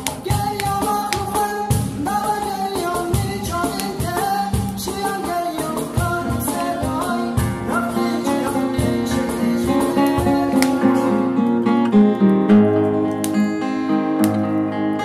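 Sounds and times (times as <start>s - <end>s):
person singing: 0.0s - 11.6s
beat: 0.0s - 14.6s
guitar: 0.0s - 15.0s.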